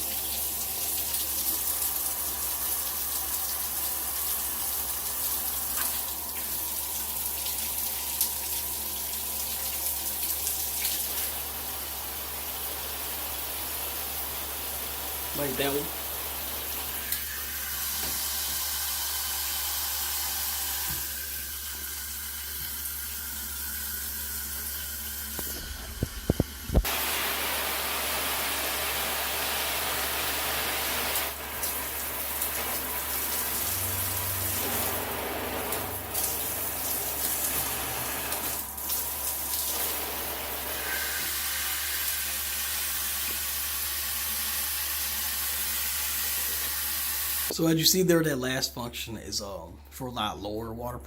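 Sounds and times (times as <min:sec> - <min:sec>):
shower head spraying water: 0:09.7 - 0:47.5.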